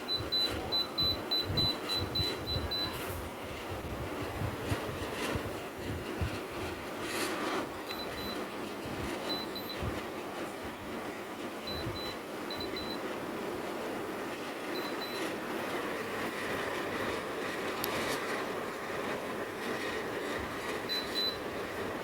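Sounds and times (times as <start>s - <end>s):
air conditioner fan rushing: 0.0s - 22.0s
short high-pitched beeps: 11.7s - 13.0s, 14.8s - 15.2s.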